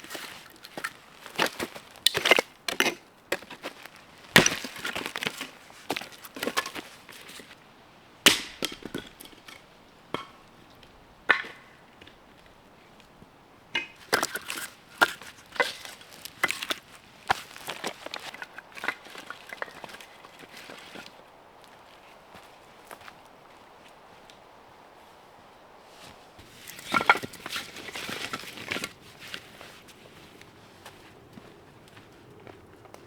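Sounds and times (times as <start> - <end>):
axe splitting firewood: 0.2 - 7.4, 8.2 - 12.2, 13.7 - 20.9.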